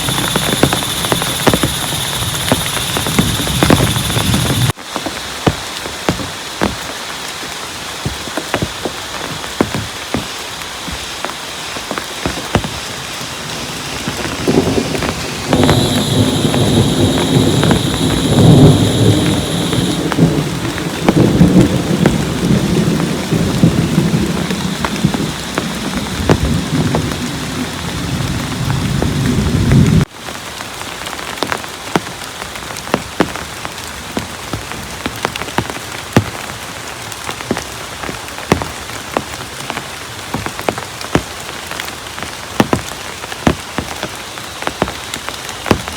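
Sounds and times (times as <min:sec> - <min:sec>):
heavy rain with drop ticks: 0:00.0 - 0:45.9
low rumble of thunder: 0:13.6 - 0:30.0.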